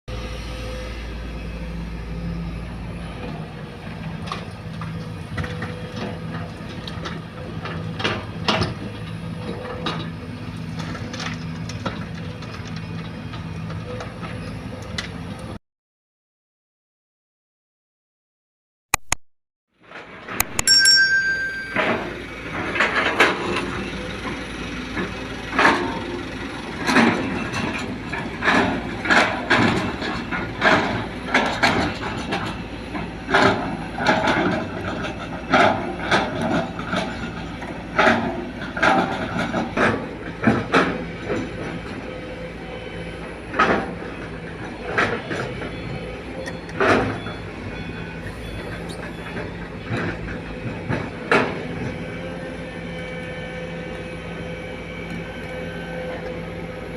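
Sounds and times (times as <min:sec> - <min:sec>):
excavator diesel engine running: 0:00.1 - 0:15.6, 0:21.4 - 0:56.9
excavator clanks and knocks: 0:04.0 - 0:15.2, 0:20.3 - 0:42.5, 0:43.1 - 0:53.2.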